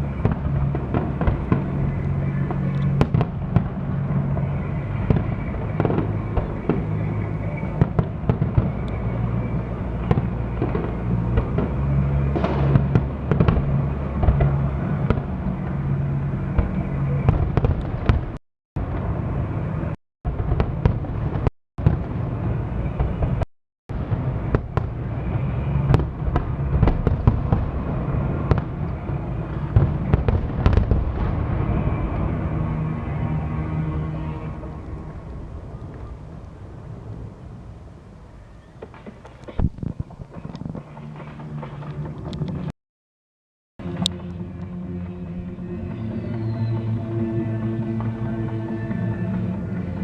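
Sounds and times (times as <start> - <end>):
fireworks bangs and crackles: 0.0 - 33.0, 38.8 - 42.7.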